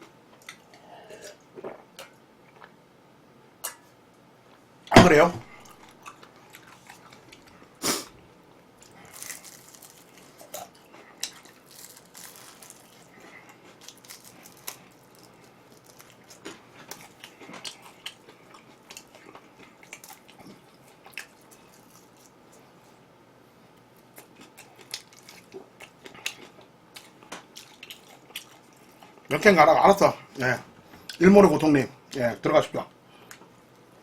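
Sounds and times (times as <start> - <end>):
wet chewing: 5.6 - 7.8, 8.8 - 22.6, 24.1 - 29.3
crunching fried chicken: 8.8 - 22.6, 24.0 - 29.3.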